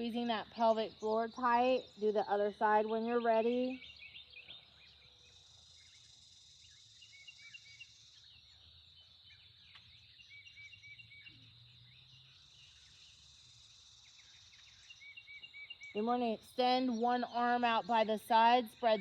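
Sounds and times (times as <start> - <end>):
small birds chirping: 0.0 - 19.0
high-pitched insect drone: 5.2 - 9.0.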